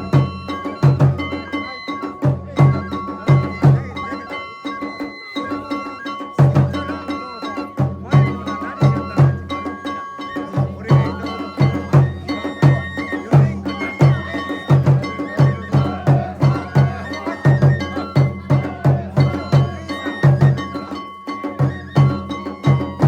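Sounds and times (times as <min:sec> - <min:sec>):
drum beating fast: 0:00.0 - 0:23.0
high flute melody: 0:00.0 - 0:23.0.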